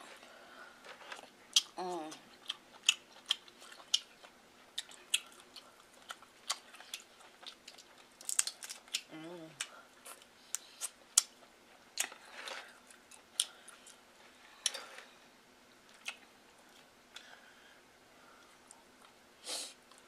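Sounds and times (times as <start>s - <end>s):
wet chewing and lip smacks: 1.2s - 12.2s.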